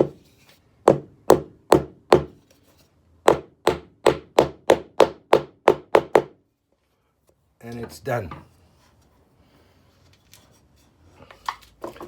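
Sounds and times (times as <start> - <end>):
hammer tapping wooden plug: 0.9 - 2.4, 3.3 - 6.4.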